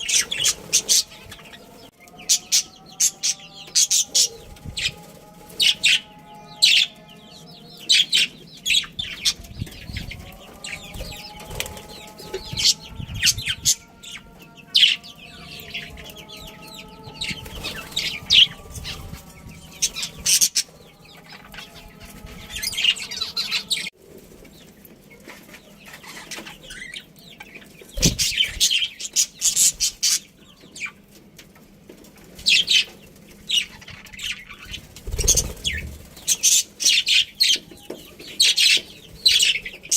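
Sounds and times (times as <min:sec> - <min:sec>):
wings fluttering: 0:09.0 - 0:26.8, 0:27.9 - 0:30.2, 0:32.2 - 0:37.6.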